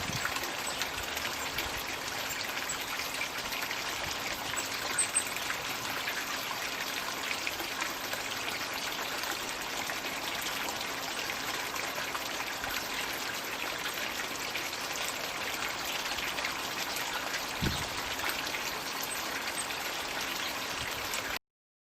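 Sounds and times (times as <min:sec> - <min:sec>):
water trickling and splashing: 0:00.0 - 0:21.4
low thump: 0:17.6 - 0:18.0.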